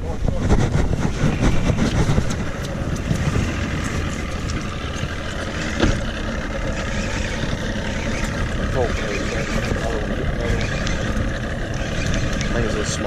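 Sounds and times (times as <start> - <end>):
wind noise: 0.0 - 8.8
boat motor rumbling: 0.0 - 13.0.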